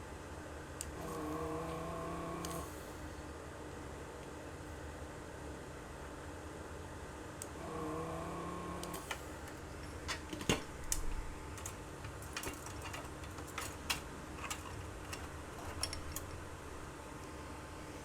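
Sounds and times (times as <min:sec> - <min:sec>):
small tools clicking and tapping: 0:09.8 - 0:16.4.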